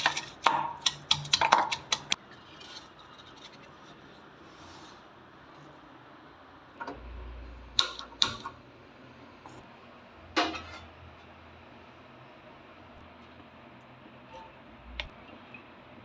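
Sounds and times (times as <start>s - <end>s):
kitchen utensils clattering: 10.4s - 10.9s.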